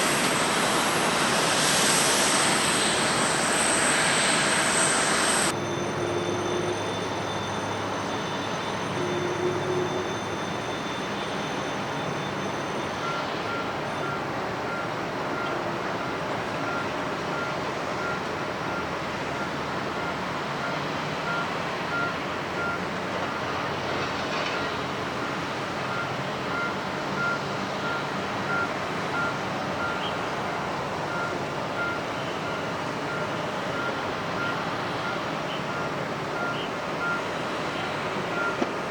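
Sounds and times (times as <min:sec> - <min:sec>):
jet airliner rumble: 0:00.0 - 0:05.6
thin high whine: 0:00.0 - 0:13.0
vehicle reversing beeper: 0:00.0 - 0:38.8
airport ground equipment: 0:00.0 - 0:38.9.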